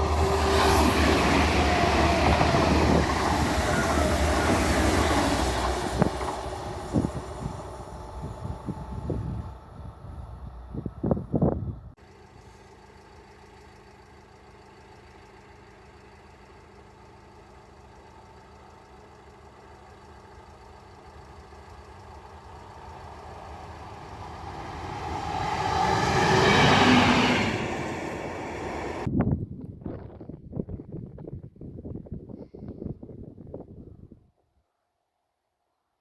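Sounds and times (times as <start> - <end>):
train passing: 0.0 - 14.2, 15.4 - 29.1.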